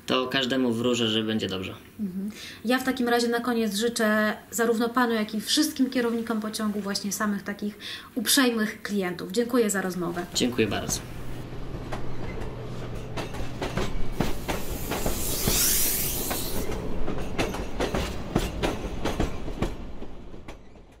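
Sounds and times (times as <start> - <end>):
train wheels clicking over rail joints: 11.7 - 21.0
hissing burst: 14.0 - 16.8.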